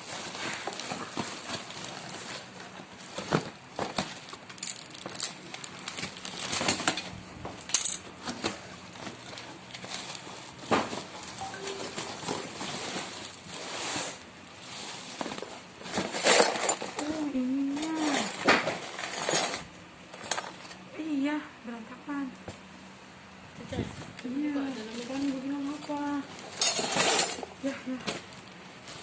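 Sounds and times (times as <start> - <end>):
packaging rustling: 0.0 - 19.3.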